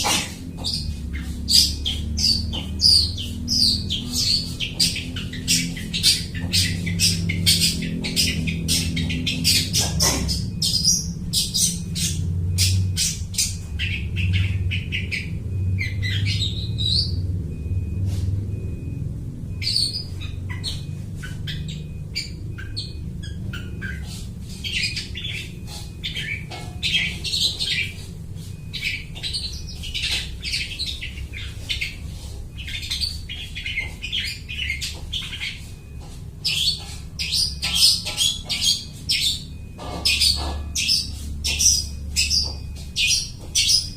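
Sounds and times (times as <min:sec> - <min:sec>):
bird singing chirps and whistles: 0:00.1 - 0:17.7, 0:19.5 - 0:43.9.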